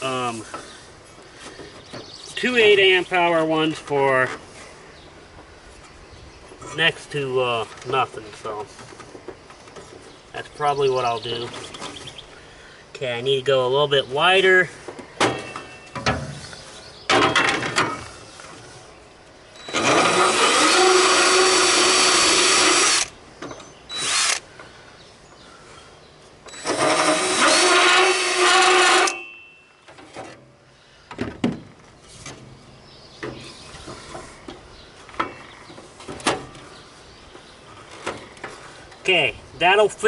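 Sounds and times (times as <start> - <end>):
cordless power tool cutting plastic: 19.7 - 23.1, 24.0 - 24.4, 26.5 - 29.2.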